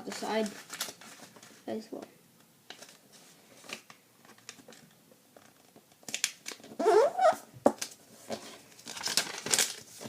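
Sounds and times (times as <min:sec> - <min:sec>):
paper crackling and rustling: 0:00.0 - 0:01.6, 0:02.7 - 0:04.8, 0:07.8 - 0:10.0.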